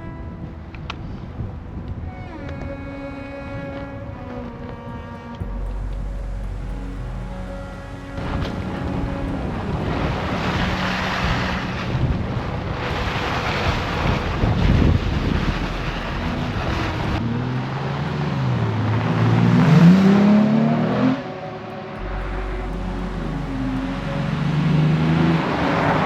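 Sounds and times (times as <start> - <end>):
wind and road noise: 0.0 - 26.0
truck engine revving: 5.2 - 26.0.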